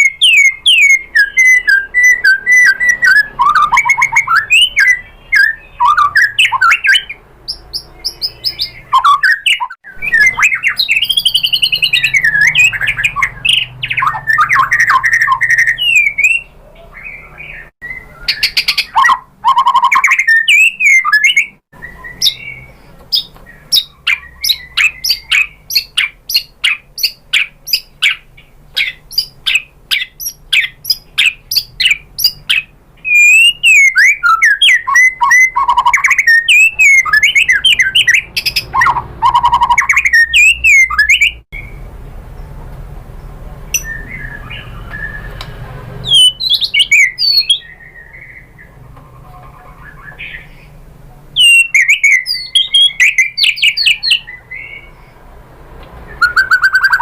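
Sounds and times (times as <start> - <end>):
bird sharp ticking notes: 0.0 - 41.8
bird singing warbled whistles: 0.0 - 41.8, 43.8 - 45.4, 46.0 - 48.7, 51.4 - 55.0, 56.1 - 57.0.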